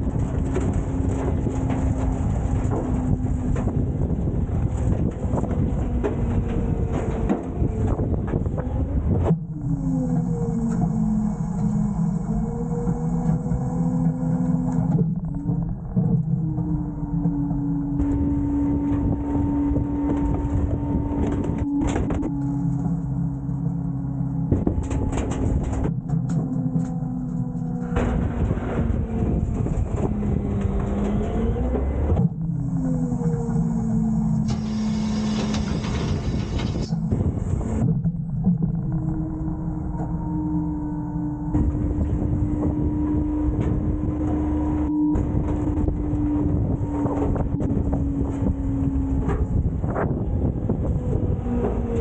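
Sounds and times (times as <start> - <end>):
garbage truck engine running: 0.0 - 52.0
mechanical whine: 0.0 - 52.0
metal knocks and bangs: 12.8 - 32.0.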